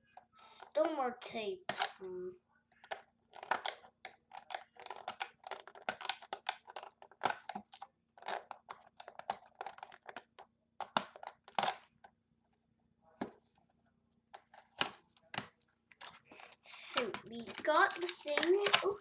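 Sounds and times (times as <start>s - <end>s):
cardboard packaging crinkling: 2.8s - 11.9s, 14.4s - 19.0s.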